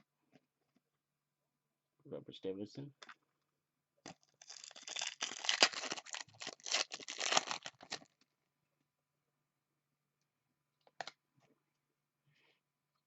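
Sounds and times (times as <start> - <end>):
foil wrapper crinkling and tearing: 4.2 - 8.2.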